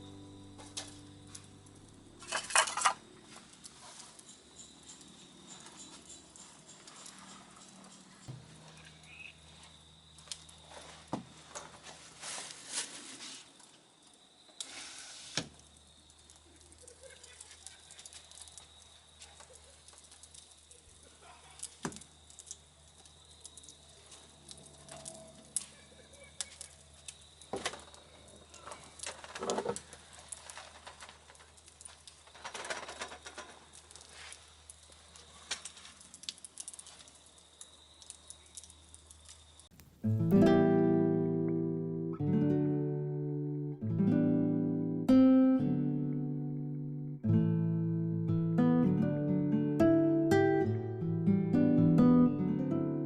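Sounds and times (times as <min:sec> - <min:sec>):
campfire crackling: 0:00.0 - 0:46.8
faint hiss: 0:08.7 - 0:40.6.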